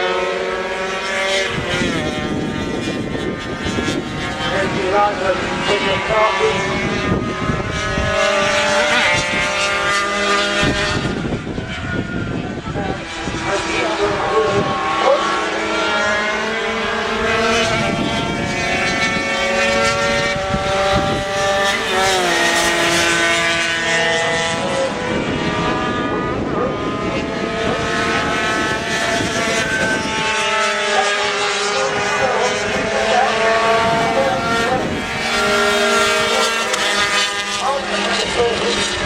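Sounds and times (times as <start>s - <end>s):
racing motorcycle engines revving: 0.0s - 39.0s.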